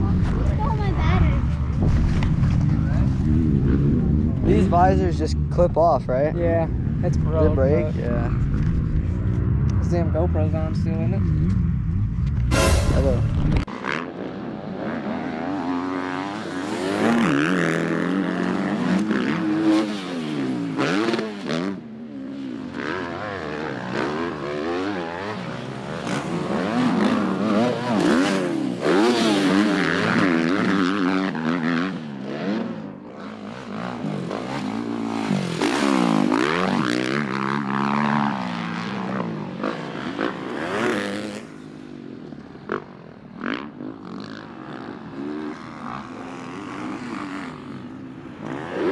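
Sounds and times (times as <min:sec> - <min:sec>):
dirt bike engine revving: 0:06.6 - 0:42.1.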